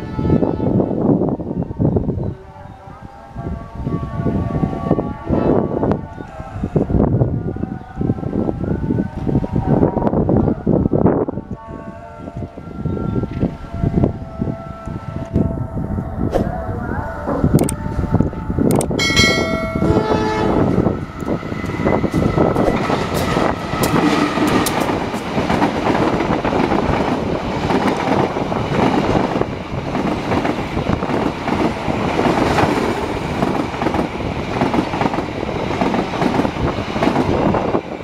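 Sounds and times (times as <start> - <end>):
locomotive horn: 0.0 - 1.0, 2.6 - 8.1, 11.3 - 16.4, 17.2 - 22.7
train wheels clickety-clack: 21.2 - 37.9.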